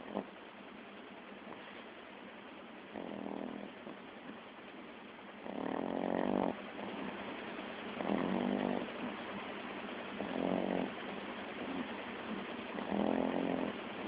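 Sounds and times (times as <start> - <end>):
dog snoring: 0.0 - 0.4, 1.4 - 1.9, 2.9 - 4.4, 5.3 - 9.4, 10.1 - 14.0.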